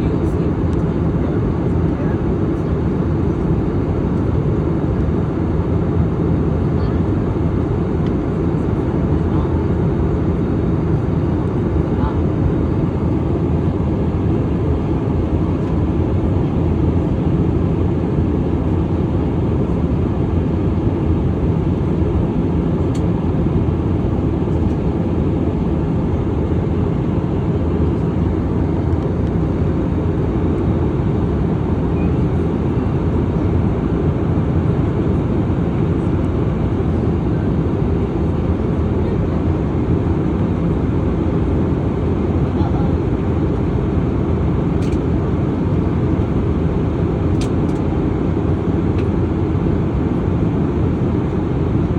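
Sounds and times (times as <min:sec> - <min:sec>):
jet airliner cabin rumble: 0:00.0 - 0:51.9
faint click: 0:47.3 - 0:47.8.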